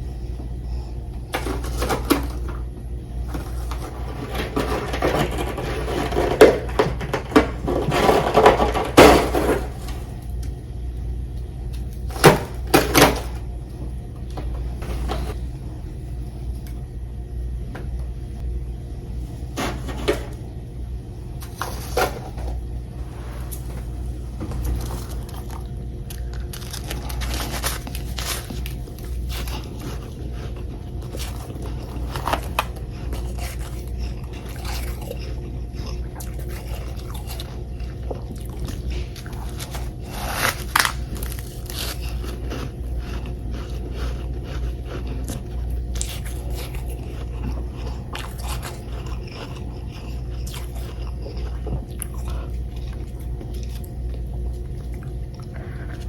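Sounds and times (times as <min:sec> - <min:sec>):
steady low hum: 0:00.0 - 0:56.0
crisp crunching of frost chunks: 0:24.7 - 0:54.3.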